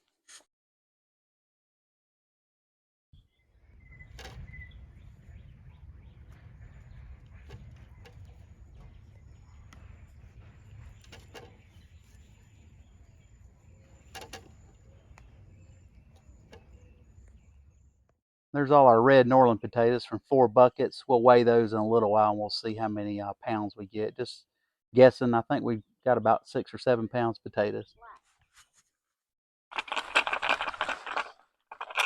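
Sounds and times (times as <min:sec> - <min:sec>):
bird chirp: 0:03.2 - 0:18.1
low rumble: 0:03.6 - 0:18.0
small clicks and knocks: 0:03.8 - 0:17.6.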